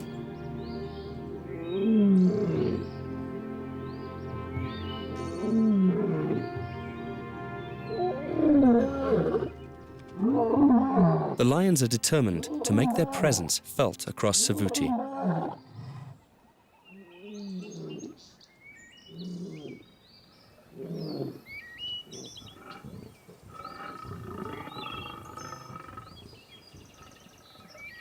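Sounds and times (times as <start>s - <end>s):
birds chirping: 0.0s - 10.2s, 11.3s - 28.0s.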